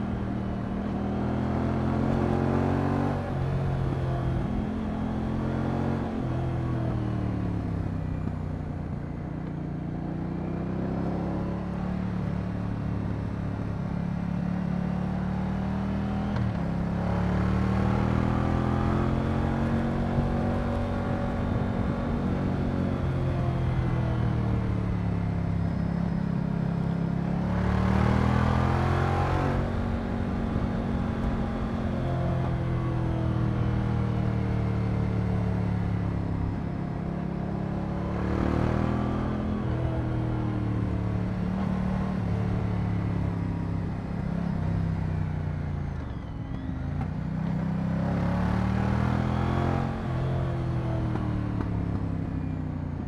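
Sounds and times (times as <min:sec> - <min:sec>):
motorcycle engine revving: 0:45.9 - 0:52.6.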